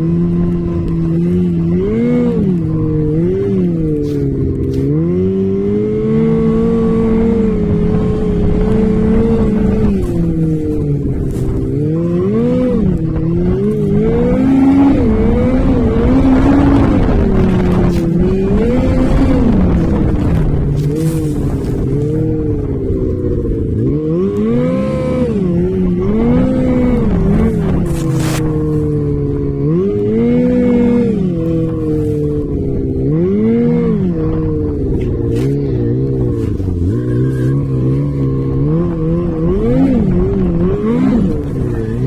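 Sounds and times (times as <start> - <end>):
off-road vehicle engine revving: 0.0 - 42.0.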